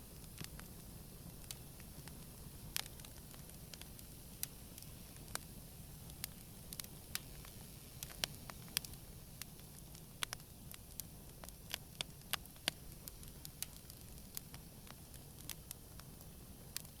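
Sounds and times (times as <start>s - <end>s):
campfire crackles and pops: 0.0s - 17.0s
hiss of flames: 0.0s - 17.0s.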